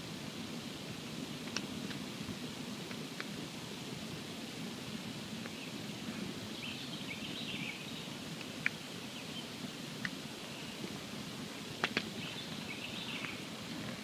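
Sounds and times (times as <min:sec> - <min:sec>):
campfire burning: 0:00.0 - 0:14.0
fire crackling pops: 0:00.8 - 0:05.7, 0:08.2 - 0:09.1, 0:09.7 - 0:14.0.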